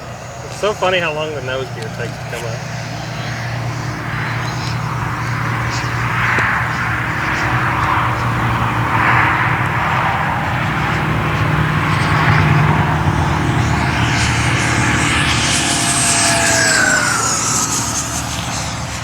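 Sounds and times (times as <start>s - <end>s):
model jet fan rushing: 0.0s - 19.0s.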